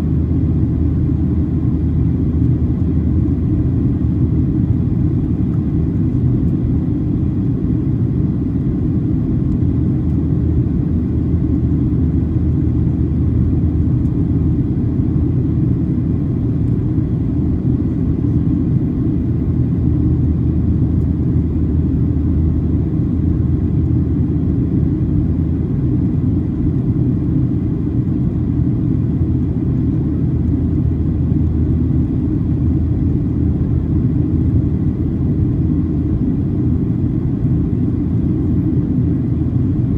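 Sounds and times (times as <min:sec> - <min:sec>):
aircraft cabin rumble: 0:00.0 - 0:39.9.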